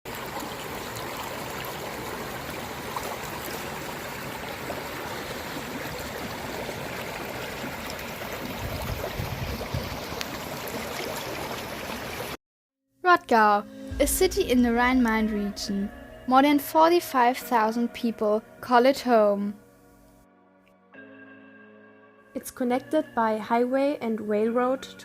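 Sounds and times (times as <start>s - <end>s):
stream water flowing: 0.1s - 12.4s
low rumble: 13.6s - 18.8s.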